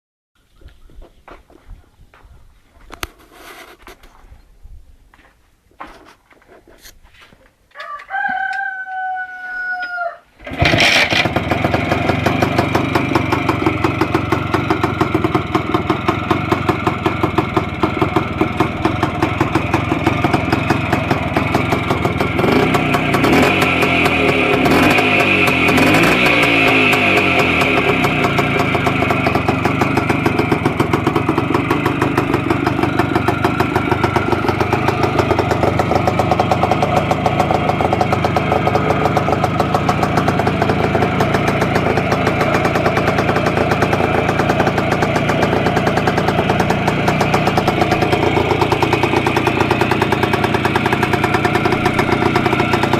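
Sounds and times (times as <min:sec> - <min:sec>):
rooster crowing: 0:07.7 - 0:10.3
two-stroke motorcycle engine: 0:10.4 - 0:52.9.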